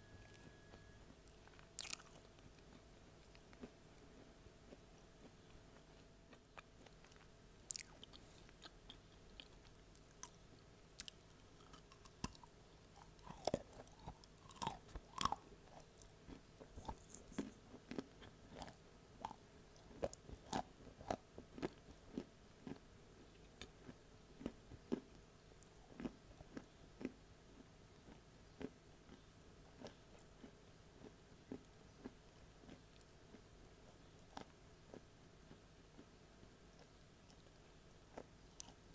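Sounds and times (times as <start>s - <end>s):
person chewing crunchy clay: 0.2s - 38.9s.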